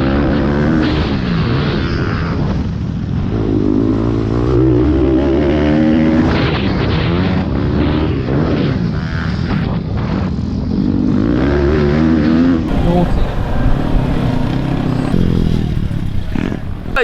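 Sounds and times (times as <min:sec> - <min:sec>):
pit bike engines revving: 0:10.8 - 0:17.0.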